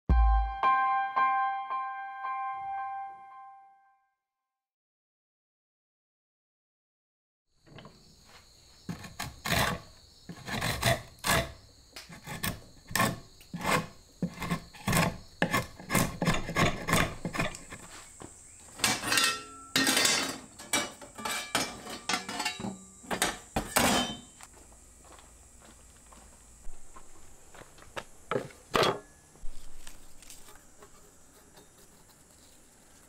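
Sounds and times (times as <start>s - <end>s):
hand tool scraping: 8.9s - 18.1s, 18.8s - 24.4s, 29.4s - 33.0s.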